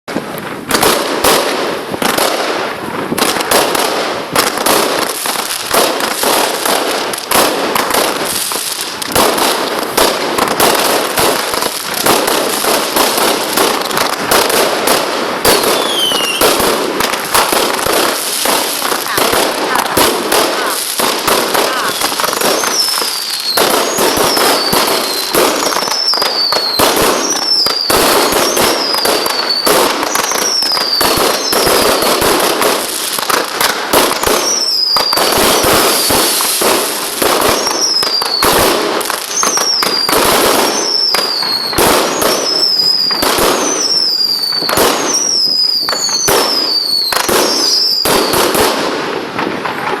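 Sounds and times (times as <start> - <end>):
fireworks crackling and popping: 0.0 - 50.0
fireworks whistle falling: 39.3 - 48.4.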